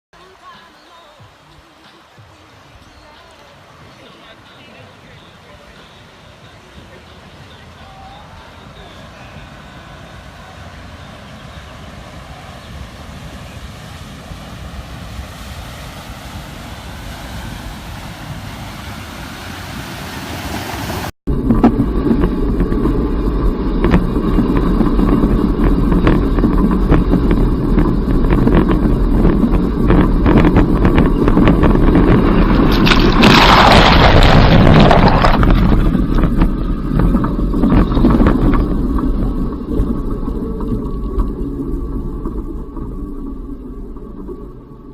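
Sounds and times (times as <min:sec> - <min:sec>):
water rushing and splashing: 0:00.2 - 0:44.9
car engine running: 0:21.3 - 0:44.9.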